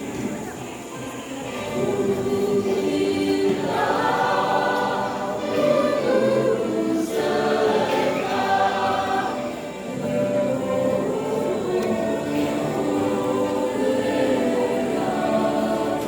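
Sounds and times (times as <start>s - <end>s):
choir singing a hymn: 0.0s - 16.0s.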